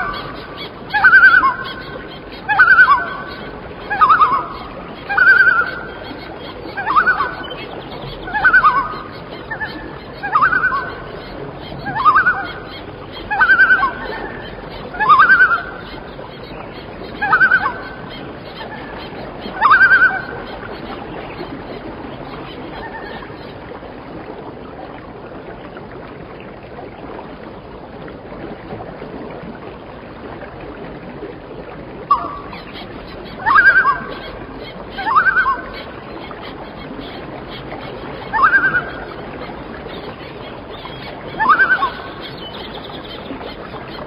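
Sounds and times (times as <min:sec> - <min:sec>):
large bird honking calls: 0:32.1 - 0:43.9.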